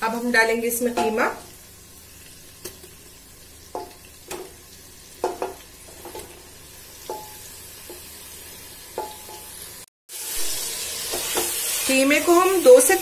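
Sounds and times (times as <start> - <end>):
meat sizzling in hot oil: 0.0 - 13.0
spoon knocking against dishes: 5.2 - 6.3, 9.0 - 9.4.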